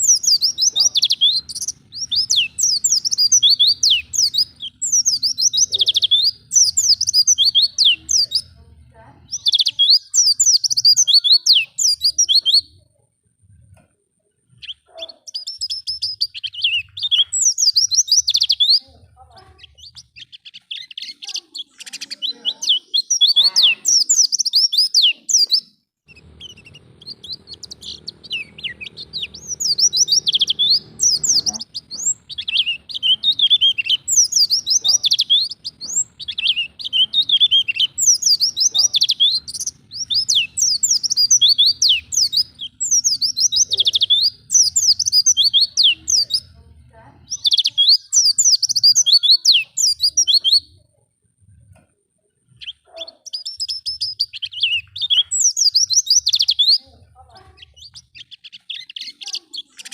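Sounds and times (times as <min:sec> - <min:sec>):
bird warbling song: 0:00.0 - 0:12.9, 0:13.5 - 0:50.9, 0:52.4 - 0:59.9.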